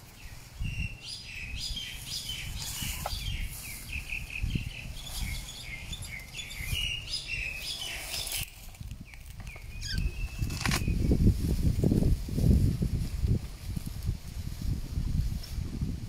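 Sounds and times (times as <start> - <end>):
small birds chirping: 0.0 - 11.2.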